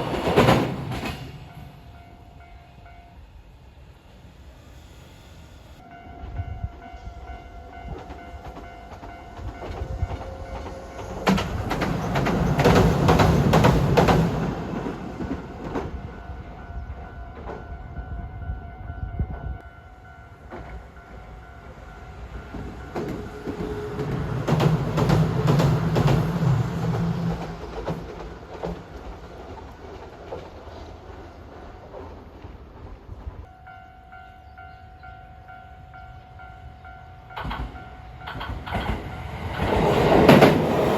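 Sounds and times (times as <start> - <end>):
train wheels clacking over rails: 0.0 - 1.6, 7.8 - 16.2, 22.4 - 32.3, 37.3 - 40.9.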